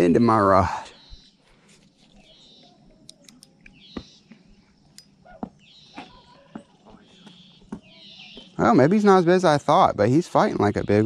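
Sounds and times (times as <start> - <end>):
faint bird chirps: 0.3 - 11.0
light irregular clicks: 3.0 - 3.8.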